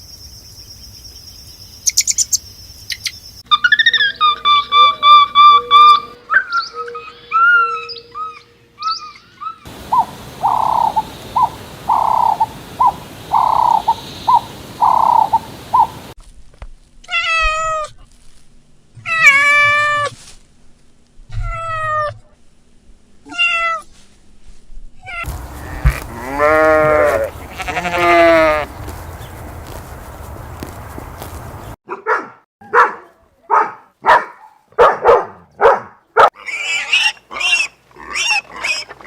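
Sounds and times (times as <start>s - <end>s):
animal calls: 3.5s - 16.1s, 25.2s - 31.8s
steady hiss: 9.7s - 16.2s
cat meowing: 25.1s - 28.6s.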